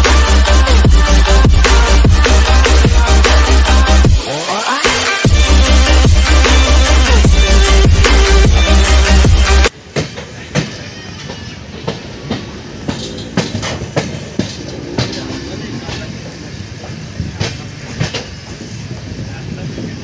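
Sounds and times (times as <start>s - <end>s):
train rolling rumble: 11.7s - 20.0s.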